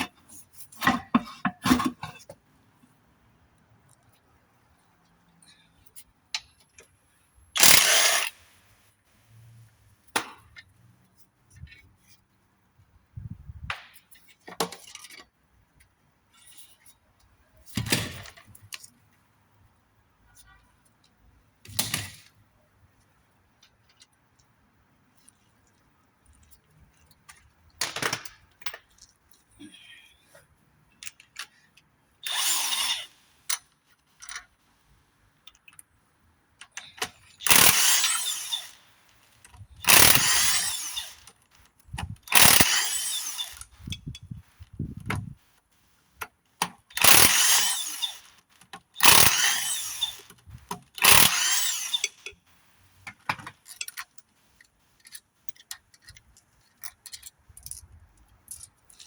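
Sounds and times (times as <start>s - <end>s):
parts clicking and knocking: 0.0s - 2.5s, 7.6s - 8.4s, 23.6s - 29.4s, 30.4s - 59.0s
power tool spinning: 7.6s - 8.4s, 32.2s - 33.2s, 37.4s - 41.4s, 42.0s - 44.0s, 46.9s - 48.4s, 49.0s - 52.3s.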